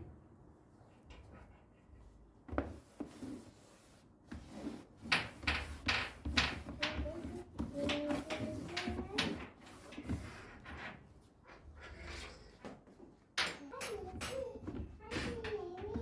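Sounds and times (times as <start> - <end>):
clattering of items being moved: 4.3 - 16.0.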